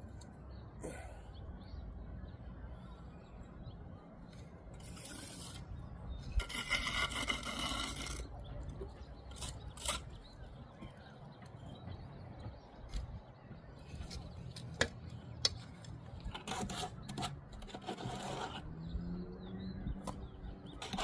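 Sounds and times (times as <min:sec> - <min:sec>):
tool scraping over brick: 0:04.8 - 0:08.4, 0:09.3 - 0:10.4, 0:16.2 - 0:18.8, 0:20.8 - 0:21.0.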